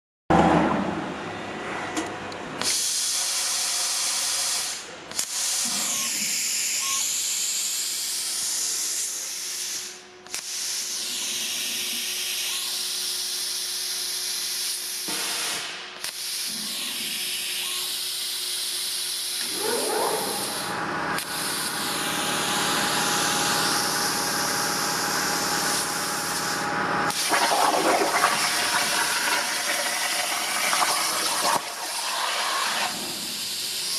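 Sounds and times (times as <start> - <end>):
plasma cutter hissing: 2.6 - 12.4, 18.2 - 27.3, 31.4 - 33.9
machine whine: 18.9 - 33.9.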